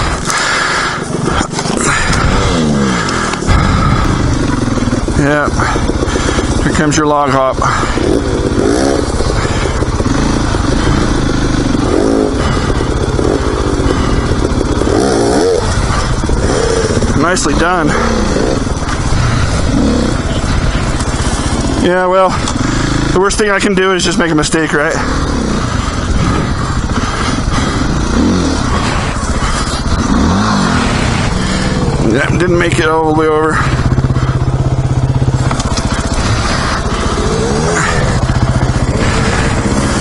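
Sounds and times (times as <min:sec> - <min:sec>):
dirt bike engine revving: 0:00.0 - 0:40.0
wind rush: 0:01.0 - 0:06.9.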